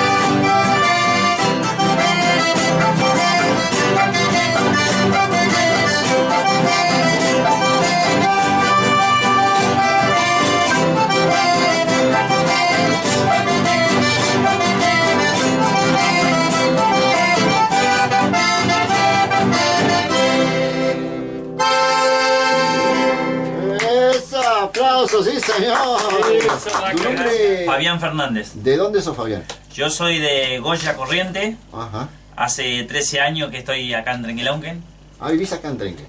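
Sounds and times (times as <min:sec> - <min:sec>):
accordion folk music: 0:00.0 - 0:24.4.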